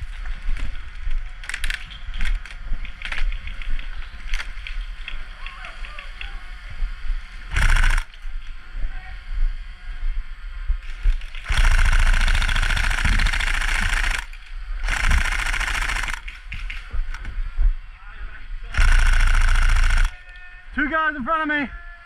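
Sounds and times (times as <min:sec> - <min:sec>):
electric guns firing full auto: 0:01.4 - 0:03.2, 0:07.5 - 0:08.2, 0:11.4 - 0:16.7, 0:18.7 - 0:20.2.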